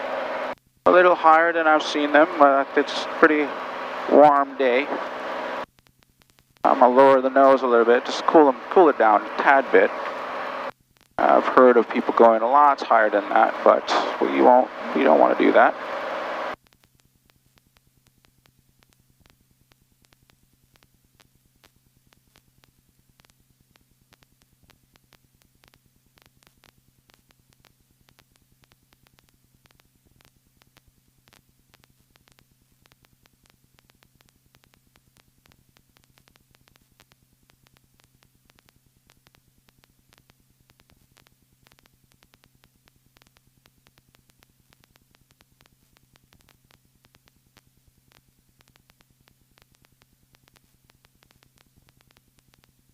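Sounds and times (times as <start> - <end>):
faint electrical hum: 0.0 - 52.9
static crackle: 0.0 - 52.9.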